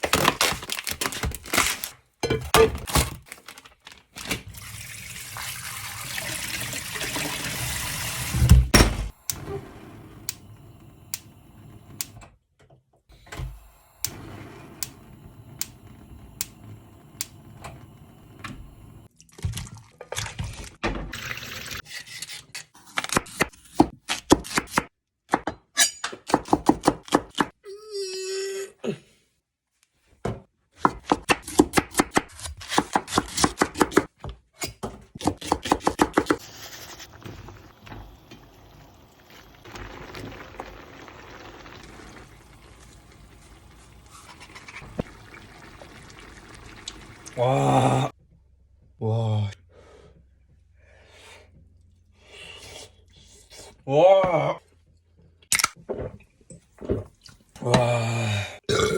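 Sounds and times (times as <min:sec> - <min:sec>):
water running from tap: 0:04.5 - 0:08.6, 0:21.1 - 0:21.8, 0:36.4 - 0:47.8.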